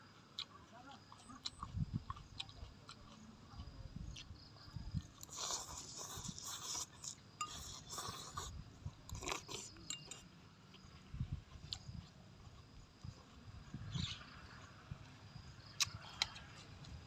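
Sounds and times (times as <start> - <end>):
crunchy chewing: 0.0 - 17.0
metal spoon clinking in glass bowl: 9.8 - 10.2.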